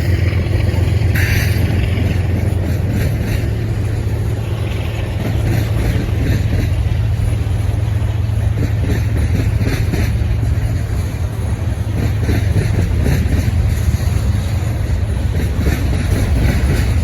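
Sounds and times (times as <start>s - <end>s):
freight train rumble: 0.0s - 17.0s
wheels clattering on rails: 0.0s - 17.0s.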